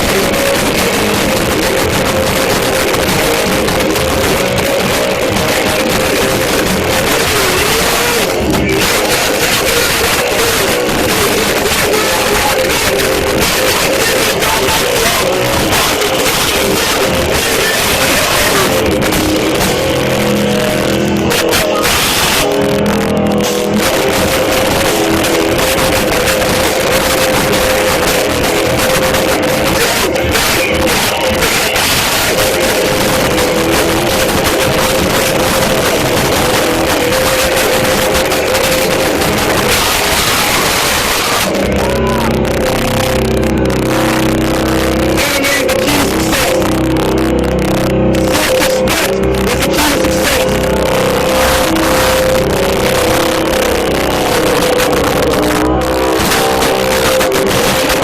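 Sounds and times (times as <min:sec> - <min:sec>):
distorted guitars: 0:00.0 - 0:58.0
live band playing heavy music: 0:00.0 - 0:58.0
shouted vocals: 0:02.7 - 0:22.7, 0:24.0 - 0:47.3.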